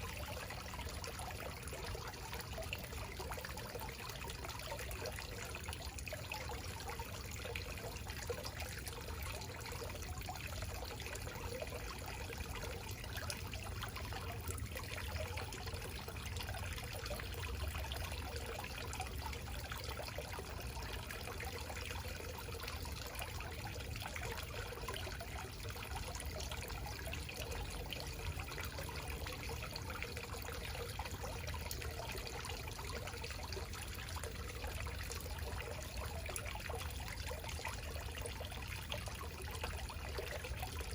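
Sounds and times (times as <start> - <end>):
water falling and trickling: 0.0 - 40.9.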